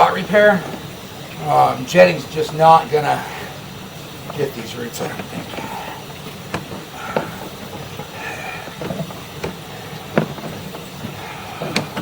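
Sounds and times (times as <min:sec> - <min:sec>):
cable reel knocks: 0:04.3 - 0:12.0.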